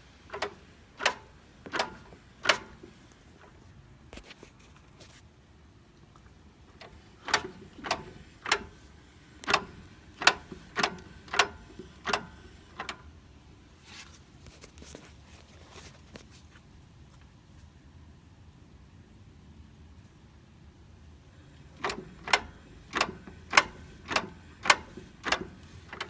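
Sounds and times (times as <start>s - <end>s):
sharp metallic clunks: 0.3s - 3.0s.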